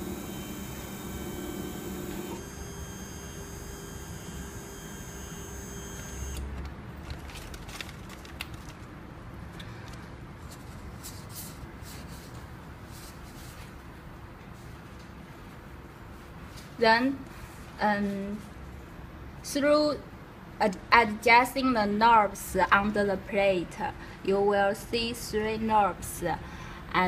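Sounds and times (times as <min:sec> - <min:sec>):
stepper motors whining: 0:00.0 - 0:06.5.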